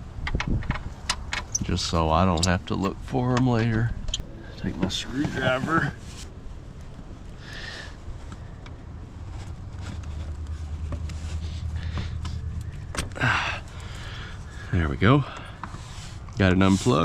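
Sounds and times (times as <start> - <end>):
low steady hum: 0.0 - 17.0
screwdriver clicking and scraping: 2.3 - 3.0.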